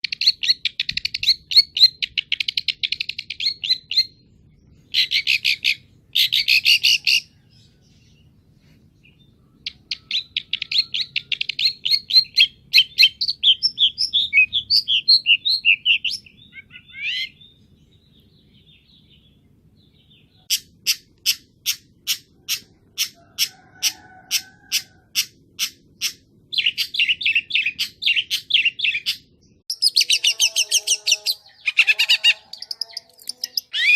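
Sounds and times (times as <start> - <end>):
bird chattering: 4.9 - 7.3, 9.5 - 17.6, 20.1 - 33.9.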